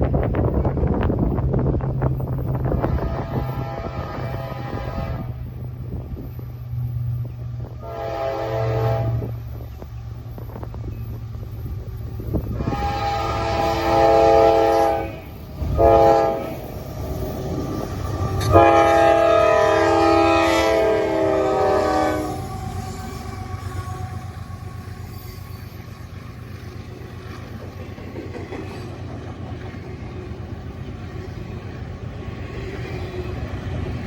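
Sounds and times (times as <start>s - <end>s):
train rumble and wheel clatter: 0.0s - 34.0s
locomotive horn blasts: 2.8s - 5.6s, 7.6s - 9.4s, 12.4s - 16.6s, 18.4s - 25.0s.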